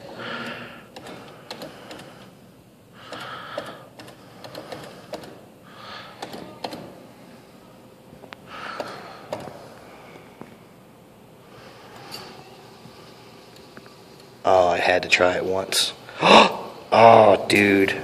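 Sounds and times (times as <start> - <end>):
person breathing through nose: 3.0 - 6.2.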